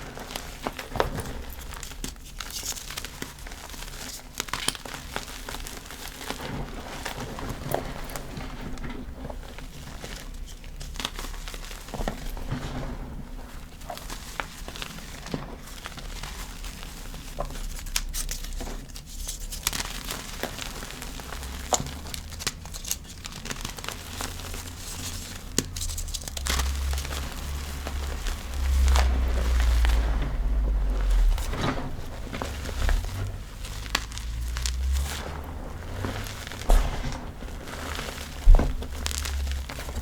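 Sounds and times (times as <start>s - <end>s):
chalk crumbling by hand: 13.8s - 40.0s
low rumble: 24.1s - 40.0s.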